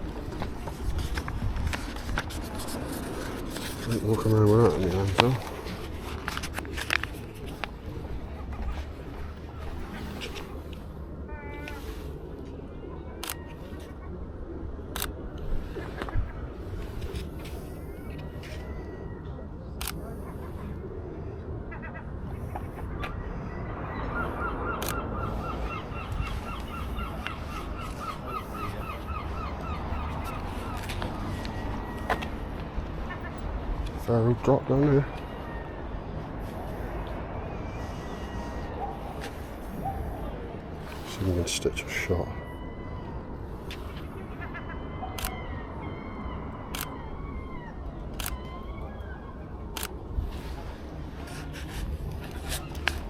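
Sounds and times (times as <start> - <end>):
gull laughing call: 23.8 - 32.2.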